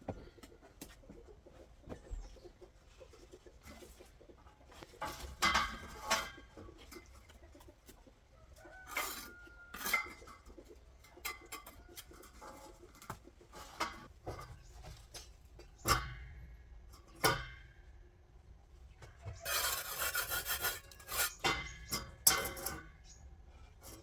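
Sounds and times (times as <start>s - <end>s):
chickens clucking: 0.0s - 17.1s.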